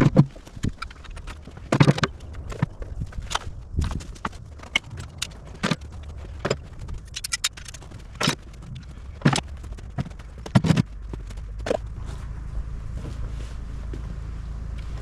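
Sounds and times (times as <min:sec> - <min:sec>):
hand tools knocking and clattering: 0:00.0 - 0:03.3
low steady rumble: 0:00.0 - 0:15.0.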